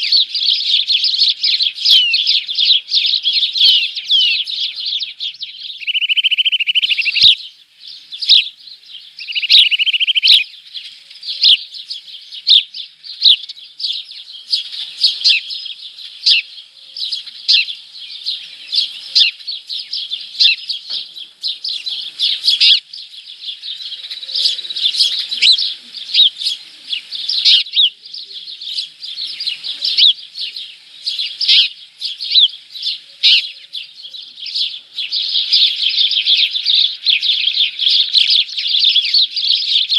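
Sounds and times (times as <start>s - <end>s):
small birds chirping: 0.0s - 39.9s
buzzy bird trills: 1.8s - 7.5s, 9.1s - 11.6s.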